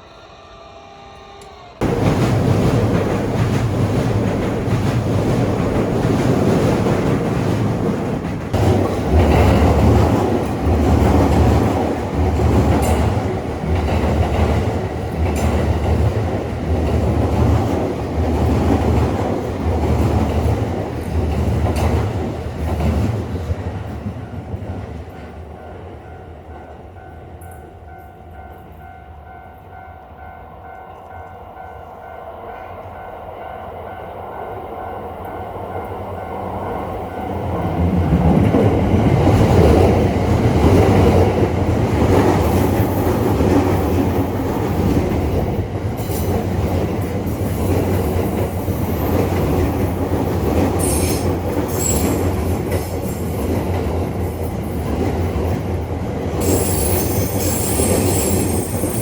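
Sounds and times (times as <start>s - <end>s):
train rumble and rail clatter: 1.4s - 59.0s
railroad crossing bell clanging: 24.2s - 38.4s, 42.4s - 54.9s, 56.4s - 59.0s
wheel squeals: 50.8s - 52.4s, 56.4s - 59.0s.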